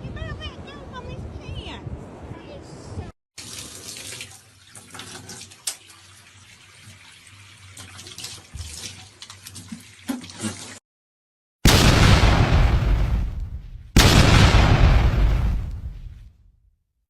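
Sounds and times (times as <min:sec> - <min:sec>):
running water: 0:03.4 - 0:10.8.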